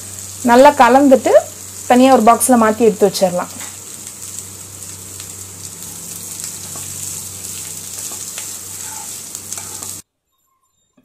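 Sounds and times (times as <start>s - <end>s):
food sizzling in oil: 0.0s - 10.0s
spoon scraping pan: 6.6s - 10.0s.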